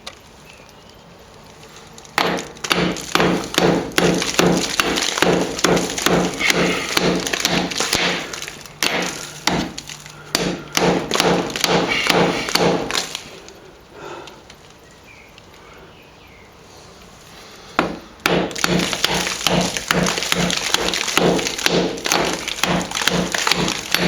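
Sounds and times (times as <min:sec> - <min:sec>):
hammer chipping plaster: 0:02.2 - 0:13.2, 0:17.8 - 0:24.0.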